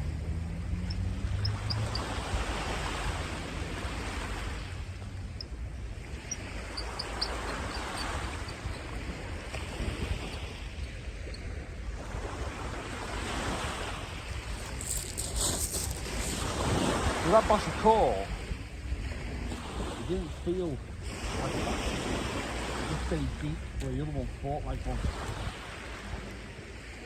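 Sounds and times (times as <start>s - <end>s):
surf breaking on a beach: 11.9s - 27.0s.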